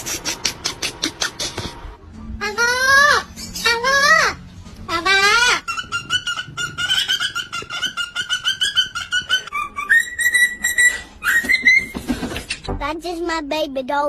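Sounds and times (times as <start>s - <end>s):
parrot calling: 2.5s - 12.0s.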